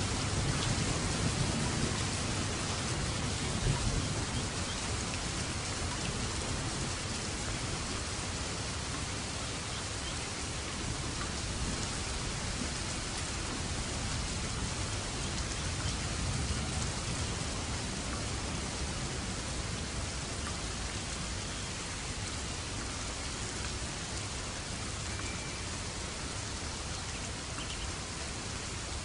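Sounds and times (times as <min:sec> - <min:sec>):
low thunder rumble: 0:00.0 - 0:08.0, 0:10.8 - 0:20.2
steady rain falling: 0:00.0 - 0:29.0.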